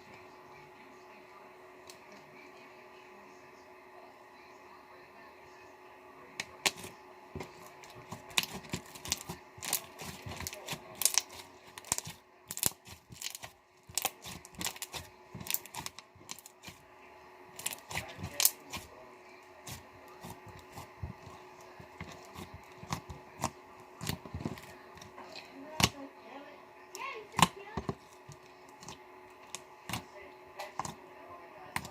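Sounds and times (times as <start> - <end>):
slime squishing with sticky pops: 7.8 - 16.8.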